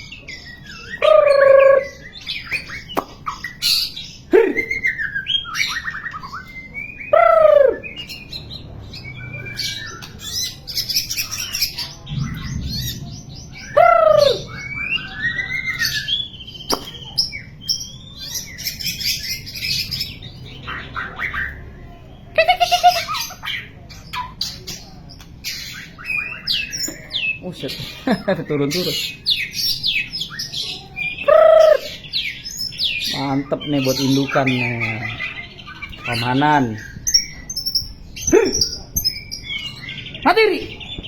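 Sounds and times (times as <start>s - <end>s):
bird singing whistles and trills: 0.0s - 21.7s, 22.7s - 27.4s, 29.0s - 41.0s
loud low whistled bird notes: 0.3s - 21.9s.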